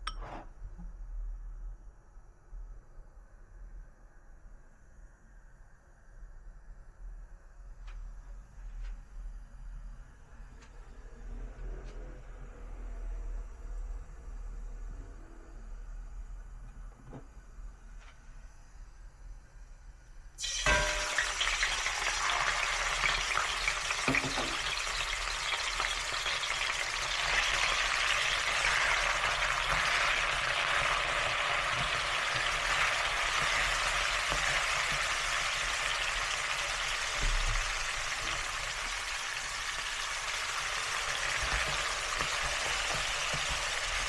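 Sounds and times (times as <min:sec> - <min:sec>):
food sizzling in a pan: 0:20.4 - 0:44.0.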